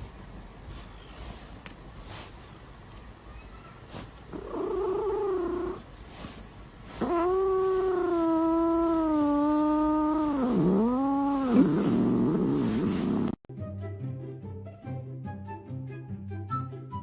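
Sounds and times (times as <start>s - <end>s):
cat yowling: 4.3s - 5.8s, 7.0s - 13.3s.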